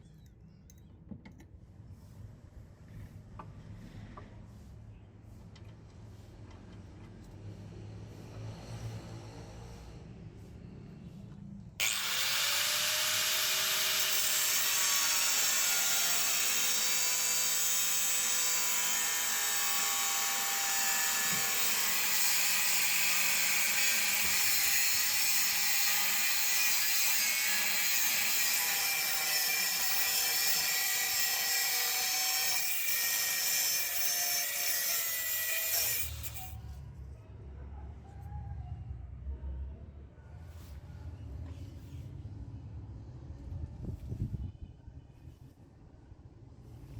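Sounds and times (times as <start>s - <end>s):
electric grinder on metal: 11.8s - 36.6s.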